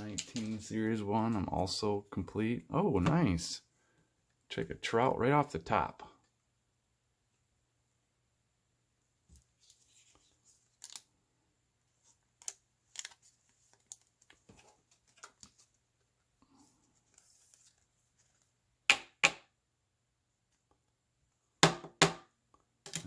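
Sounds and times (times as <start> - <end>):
cards rustling and sliding: 9.4 - 11.2, 11.9 - 15.8, 16.7 - 18.6.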